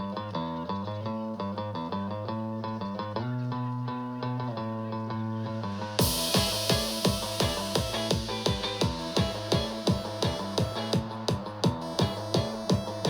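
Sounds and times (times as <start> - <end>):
electronic dance music: 5.8 - 13.0
kick drum: 6.0 - 13.0.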